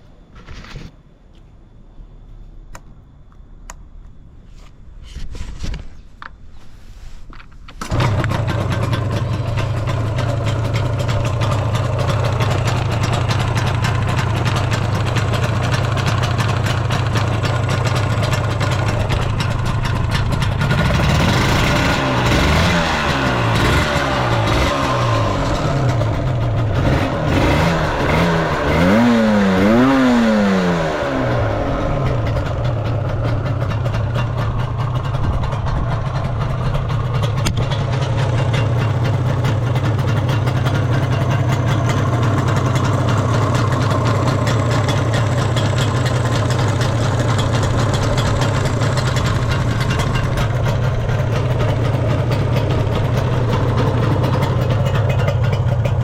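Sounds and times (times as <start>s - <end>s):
two-stroke motorcycle engine revving: 7.8s - 56.0s.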